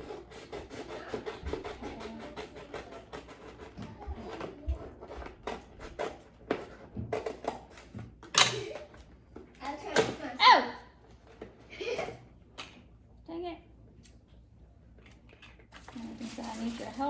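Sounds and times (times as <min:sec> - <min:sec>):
paper rustling: 0:15.1 - 0:17.0.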